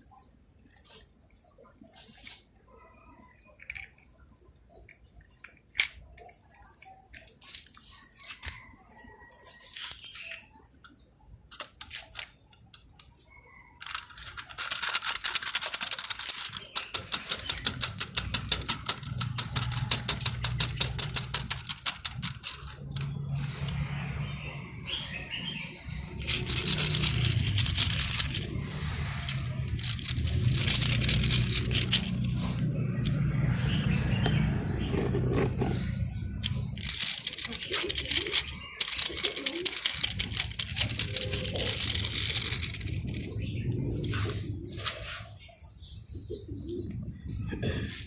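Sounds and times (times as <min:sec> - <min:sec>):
toys clicking and knocking: 0:02.4 - 0:25.0, 0:25.6 - 0:44.5
rapid clicking rattle: 0:13.8 - 0:25.0, 0:25.8 - 0:44.3.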